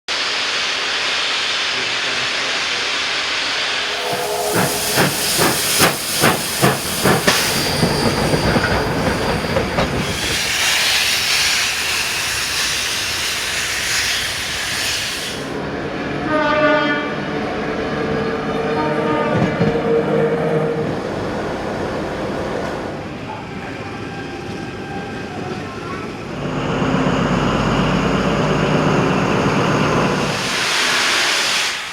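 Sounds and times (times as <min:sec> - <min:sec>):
steam locomotive hissing: 0:00.2 - 0:16.3, 0:23.2 - 0:31.9
short pitched note: 0:03.8 - 0:06.4.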